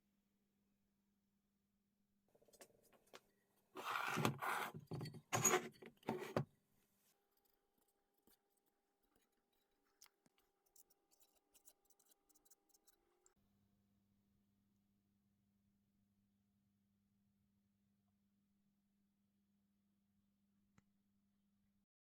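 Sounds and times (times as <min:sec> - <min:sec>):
tool scraping a hard surface: 0:03.8 - 0:06.4.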